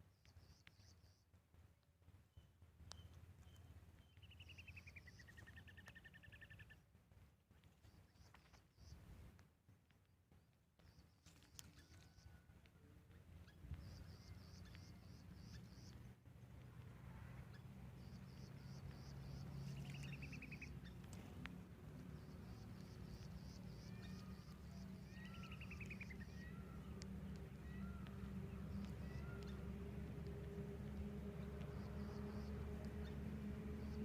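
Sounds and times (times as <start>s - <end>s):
small birds chirping: 0.0s - 9.4s, 10.0s - 34.0s
steady low hum: 12.6s - 34.0s.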